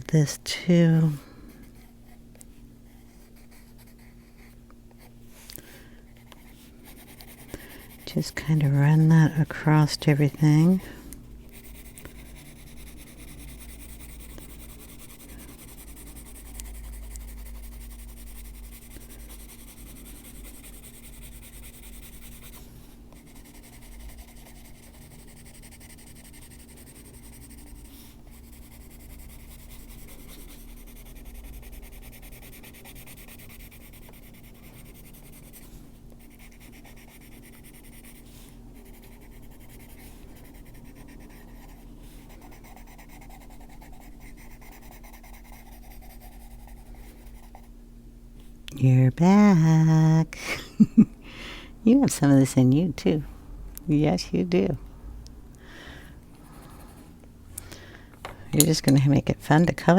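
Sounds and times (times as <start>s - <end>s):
pencil scratching on paper: 2.9s - 5.1s, 6.1s - 10.9s, 11.5s - 47.7s, 56.5s - 57.0s.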